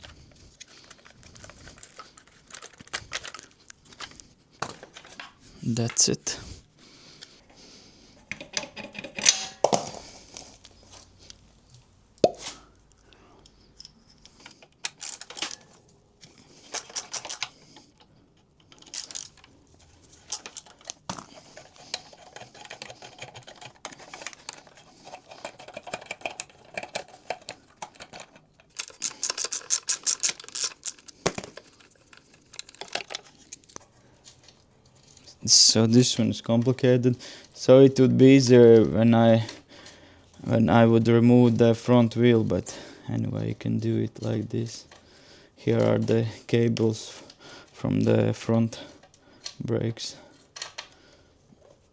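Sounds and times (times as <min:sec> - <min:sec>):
plastic panels being handled: 0:00.0 - 0:06.2, 0:18.7 - 0:35.4
hand tools clicking and rattling: 0:08.2 - 0:10.4, 0:13.4 - 0:15.8, 0:16.5 - 0:35.4.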